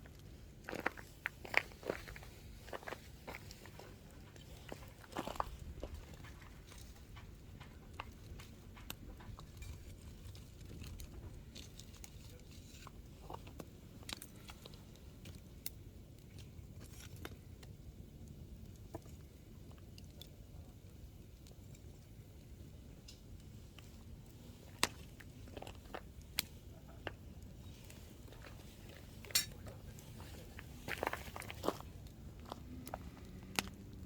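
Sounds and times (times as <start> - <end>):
campfire crackling and popping: 0.0 - 34.0
low steady rumble: 17.4 - 34.0.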